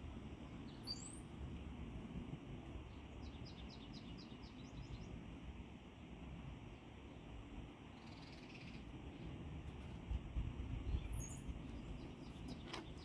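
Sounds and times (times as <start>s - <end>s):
low background rumble: 0.0s - 13.0s
songbird chirping: 0.4s - 1.4s, 2.8s - 5.3s, 7.1s - 9.4s, 10.7s - 13.0s.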